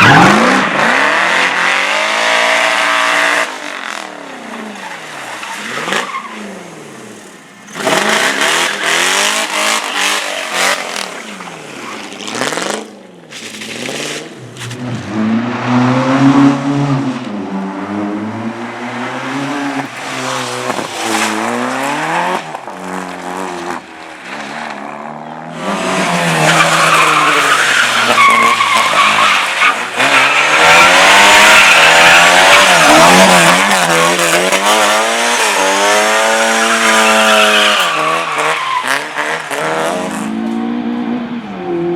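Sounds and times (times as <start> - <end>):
car engines revving: 0.0 - 41.9
tyres squealing and skidding: 2.6 - 15.0, 19.1 - 40.8.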